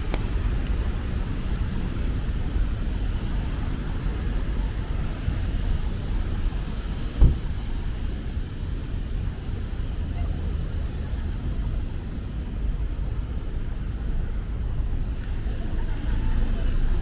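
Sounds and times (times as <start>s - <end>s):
faint hiss of rain: 0.0s - 9.9s, 11.0s - 17.0s
low rumble of traffic: 0.0s - 17.0s
thump: 7.2s - 7.7s.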